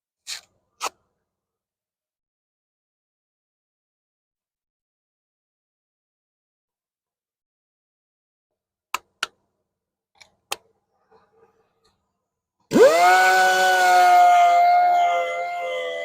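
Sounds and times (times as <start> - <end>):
power sander whining: 12.7 - 16.0.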